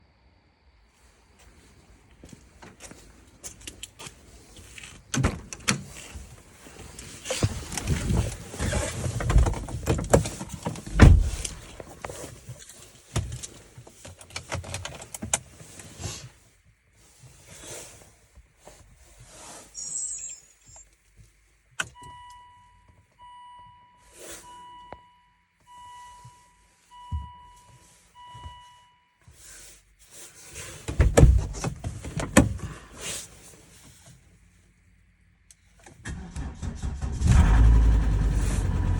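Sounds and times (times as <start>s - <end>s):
car warning chime beeping: 21.8s - 29.2s.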